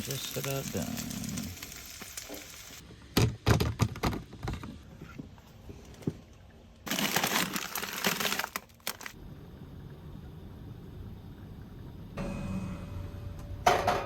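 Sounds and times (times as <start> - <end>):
steady hiss: 0.0 - 2.8.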